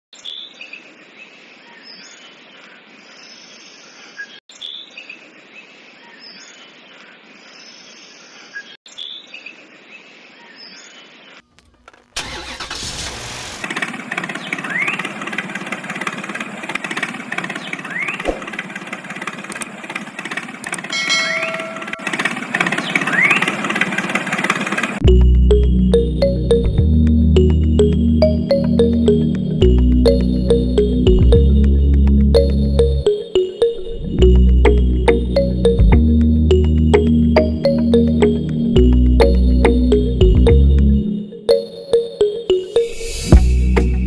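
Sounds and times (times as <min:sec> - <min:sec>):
short engine clip: 0:12.2 - 0:25.2
loud engine running steadily: 0:12.8 - 0:25.3.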